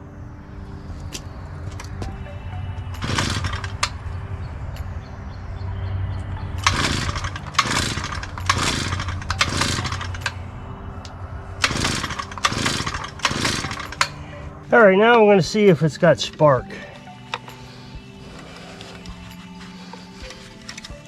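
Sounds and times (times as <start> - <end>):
recoil starter pull whirring: 3.0 - 4.2, 6.6 - 14.4.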